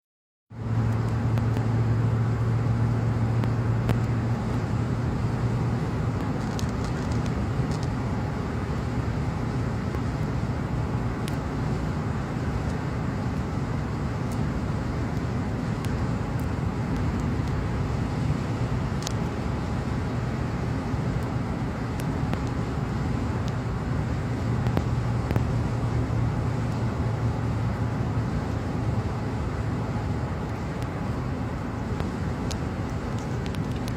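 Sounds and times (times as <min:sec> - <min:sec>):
low drivetrain hum: 0:00.5 - 0:33.9
road and tyre noise: 0:00.5 - 0:33.9.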